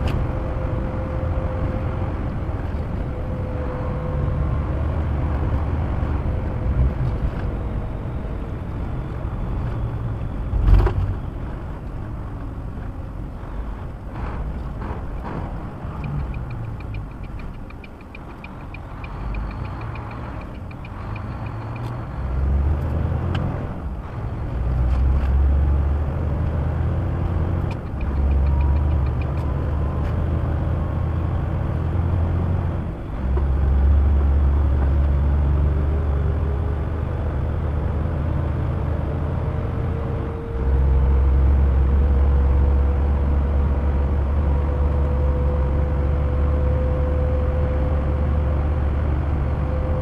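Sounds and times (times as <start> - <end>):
truck engine drone: 0.0 - 50.0
rapid ticking: 16.0 - 21.9.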